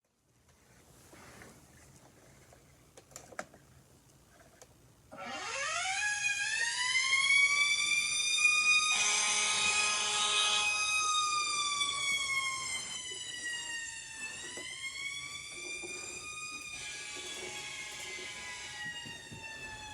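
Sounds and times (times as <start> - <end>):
mechanical siren wailing: 5.2 - 19.9.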